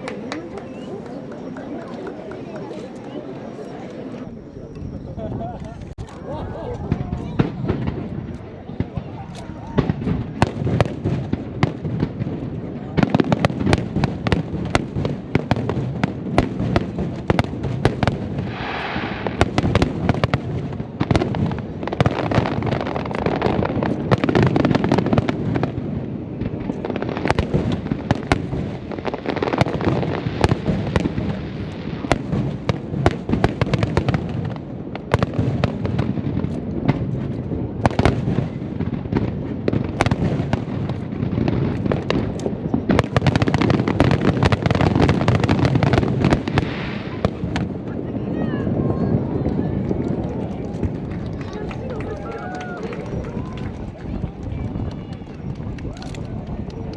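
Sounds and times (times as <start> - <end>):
hissing crackling firework spray: 13.0 - 34.5, 39.8 - 47.8.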